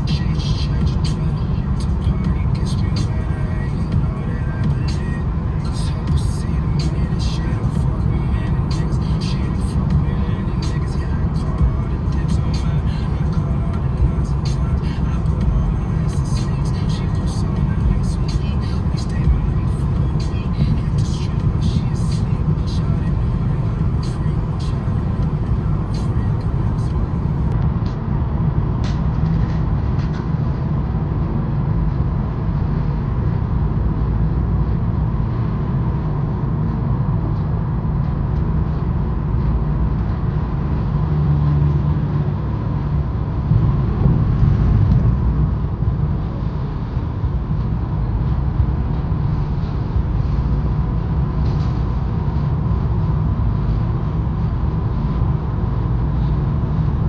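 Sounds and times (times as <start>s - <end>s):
car engine and tyre rumble: 0.0s - 57.0s
faint hum: 0.0s - 57.0s.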